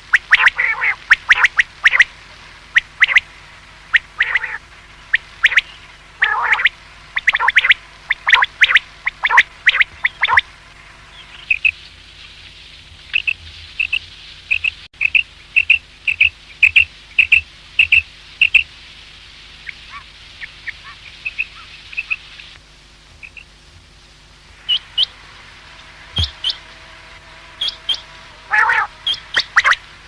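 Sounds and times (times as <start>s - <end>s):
quail chirping: 0.0s - 2.1s, 2.7s - 3.3s, 3.9s - 10.5s, 11.1s - 11.8s, 13.1s - 18.7s, 19.6s - 22.6s, 23.2s - 23.6s, 24.7s - 25.2s, 26.2s - 26.7s, 27.6s - 29.8s.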